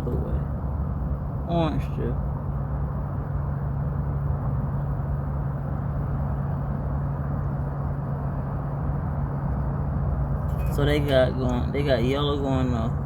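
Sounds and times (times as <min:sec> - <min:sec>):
air conditioning hum and rush: 0:00.0 - 0:13.0.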